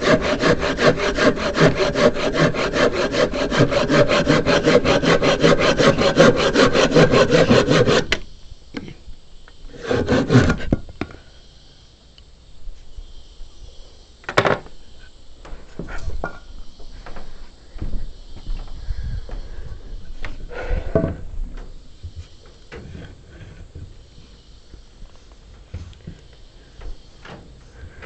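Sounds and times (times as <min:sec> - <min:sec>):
handsaw cutting wood: 0:00.0 - 0:08.2, 0:09.7 - 0:10.8.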